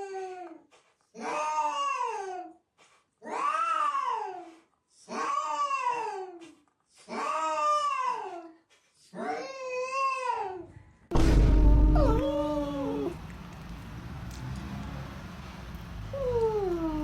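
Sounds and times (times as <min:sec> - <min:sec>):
cat yowling: 0:11.4 - 0:13.2, 0:16.1 - 0:17.0.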